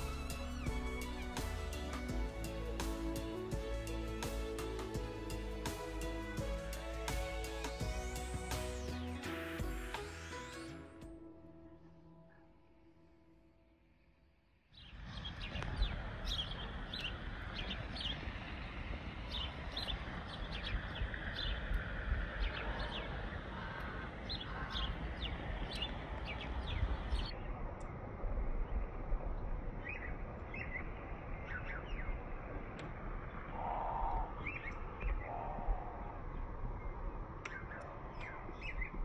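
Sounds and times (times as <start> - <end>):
steady low rumble: 0.0 - 9.0, 14.8 - 39.0
small birds chirping: 22.4 - 27.9, 33.5 - 39.0.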